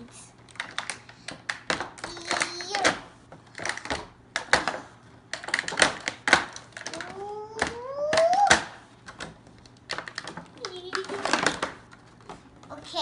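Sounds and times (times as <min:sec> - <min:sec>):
plastic toy pieces clattering: 0:00.6 - 0:04.8, 0:09.9 - 0:12.0.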